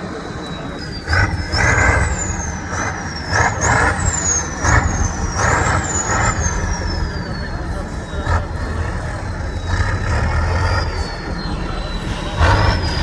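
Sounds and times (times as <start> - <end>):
high engine whine: 0.0 - 13.0
low engine rumble: 0.0 - 13.0
truck engine revving: 0.0 - 13.0.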